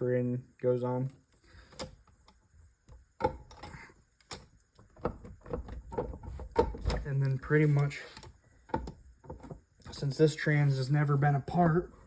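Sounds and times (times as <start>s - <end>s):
metal parts clicking and knocking: 1.7s - 10.1s.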